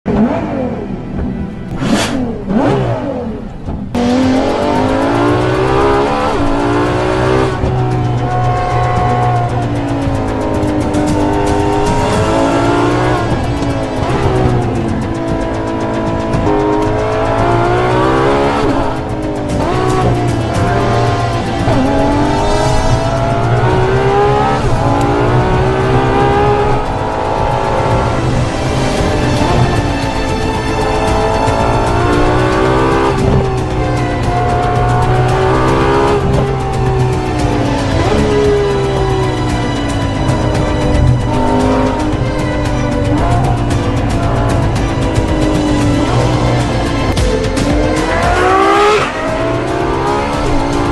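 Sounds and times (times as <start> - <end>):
car accelerating at full throttle: 0.0 - 50.9
sports car engine revving: 0.1 - 50.9.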